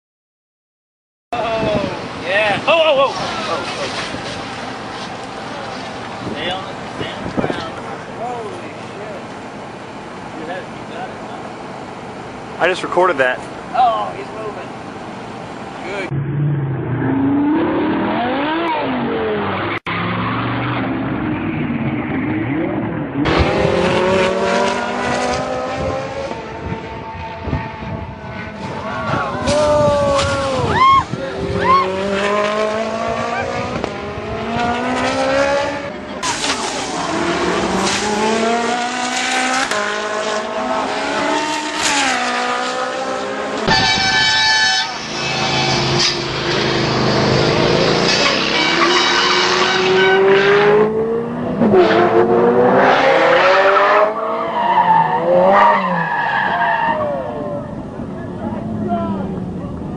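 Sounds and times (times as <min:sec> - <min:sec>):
sports car engines revving: 0:01.4 - 0:59.9
high-pitched squeal: 0:43.6 - 0:50.6.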